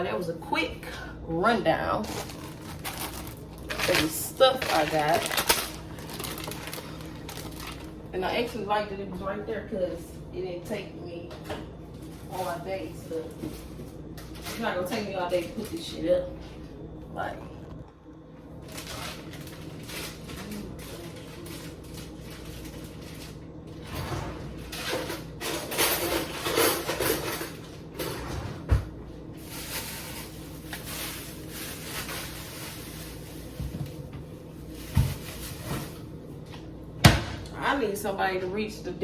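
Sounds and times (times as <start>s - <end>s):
items rustling and set down: 2.0s - 7.9s, 13.1s - 14.7s, 18.6s - 37.4s.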